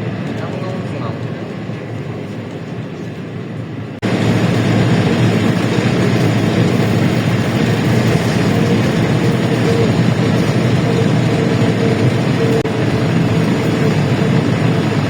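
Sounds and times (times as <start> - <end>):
bus engine and road noise: 0.0 - 15.0.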